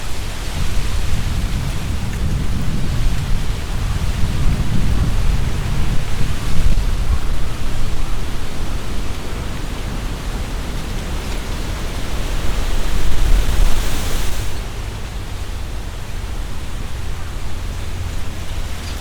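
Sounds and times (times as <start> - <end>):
wind gusting through leaves: 0.0 - 19.0
low rumble: 11.2 - 15.9.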